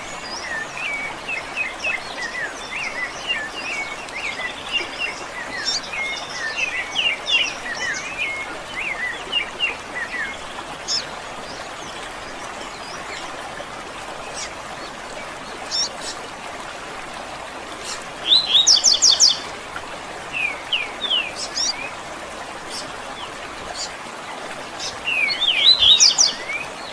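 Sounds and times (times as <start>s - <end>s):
birds chirping: 24.7s - 26.9s.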